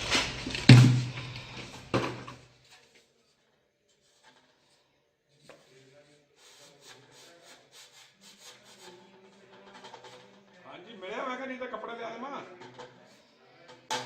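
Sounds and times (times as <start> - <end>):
faint rubbing and scraping: 0.0 - 14.0
sharp knock: 0.1 - 2.2.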